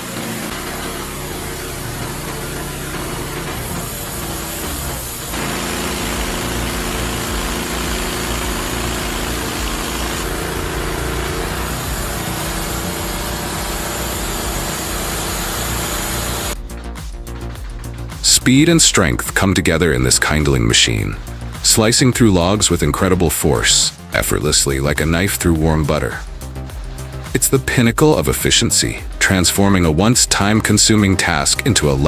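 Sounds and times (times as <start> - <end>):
engine-driven machinery running: 0.0 - 16.6.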